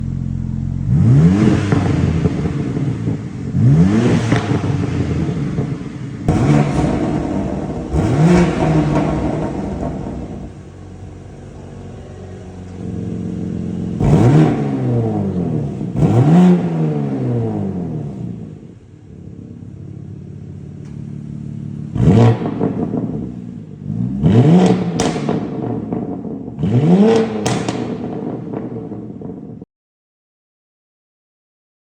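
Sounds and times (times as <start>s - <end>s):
car engine idling and revving: 0.0s - 29.6s
exhaust pops: 0.8s - 18.8s, 24.3s - 29.6s.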